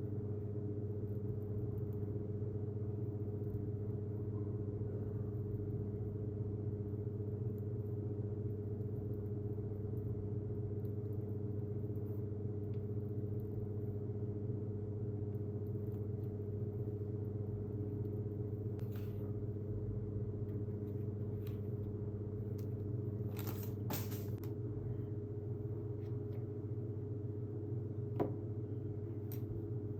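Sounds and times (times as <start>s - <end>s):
low mechanical hum: 0.0s - 29.9s.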